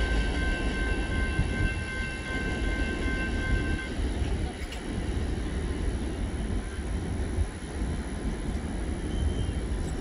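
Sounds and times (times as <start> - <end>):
freight train rumble: 0.0 - 10.0
wind buffeting microphone: 0.0 - 10.0.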